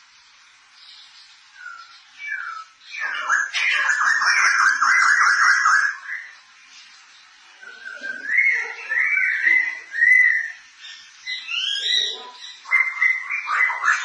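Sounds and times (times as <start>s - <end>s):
bird singing whistled notes: 0.8s - 6.5s, 7.6s - 14.0s
bird chattering: 1.7s - 6.4s, 7.7s - 14.0s.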